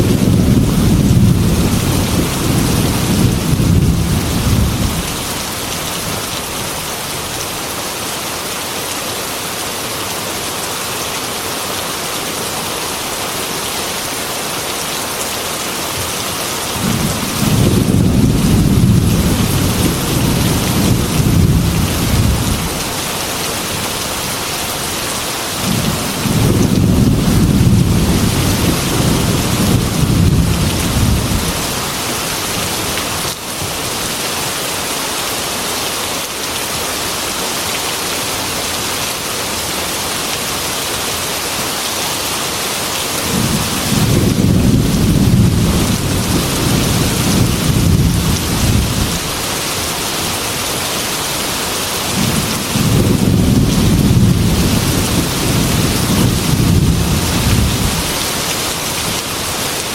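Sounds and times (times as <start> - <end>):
rolling thunder: 0.0 - 5.4, 16.8 - 23.0, 25.6 - 31.8, 43.3 - 49.4, 52.1 - 58.1
heavy rain hissing: 0.0 - 59.9.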